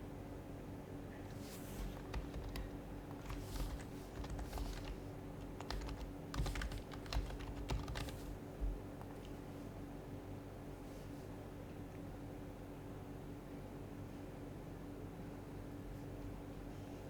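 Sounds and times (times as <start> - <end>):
keyboard typing: 1.3 - 8.4.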